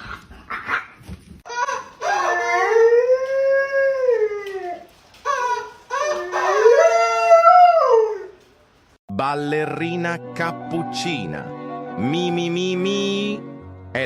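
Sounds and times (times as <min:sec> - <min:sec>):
dog howling: 0:01.5 - 0:08.4.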